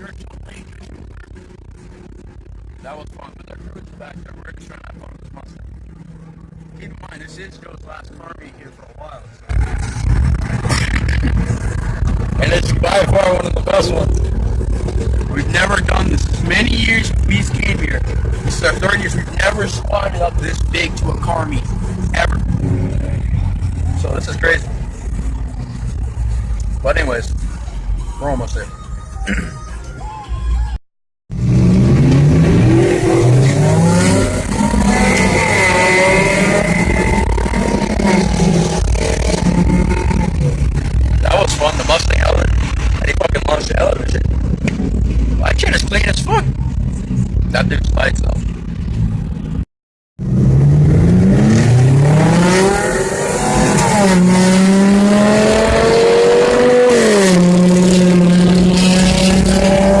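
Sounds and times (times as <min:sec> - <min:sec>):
car engine revving accelerating: 0:09.5 - 0:26.6, 0:31.3 - 0:49.2, 0:50.2 - 1:00.0.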